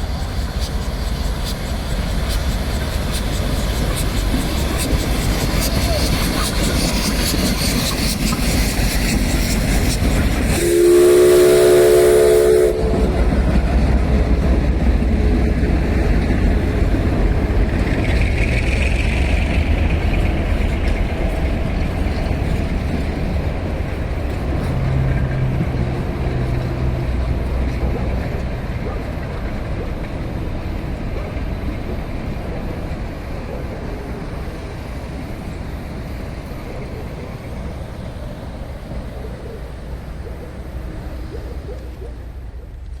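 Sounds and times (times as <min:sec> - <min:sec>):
loud steam hiss: 0:00.0 - 0:15.0
steam train rumbling past: 0:00.0 - 0:43.0
steam whistle blast: 0:10.5 - 0:13.2.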